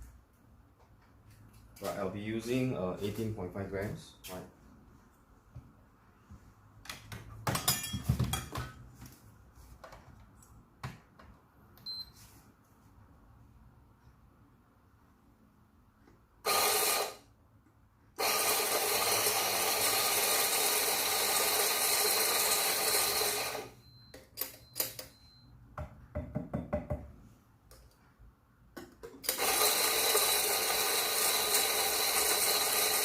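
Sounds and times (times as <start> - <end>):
coffee grinder grinding beans: 16.5 - 17.2, 18.2 - 23.8, 29.2 - 33.0.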